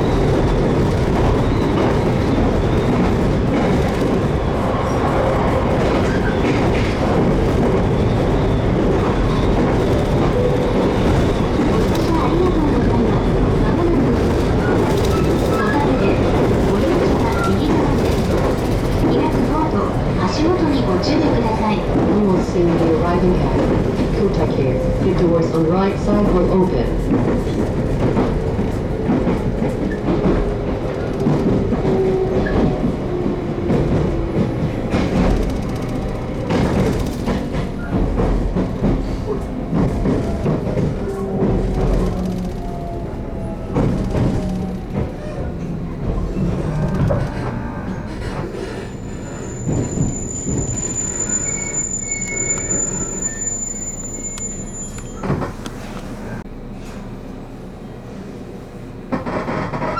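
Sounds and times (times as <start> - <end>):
train rumble: 0.0 - 59.9
wheels clacking over rail joints: 26.0 - 48.7.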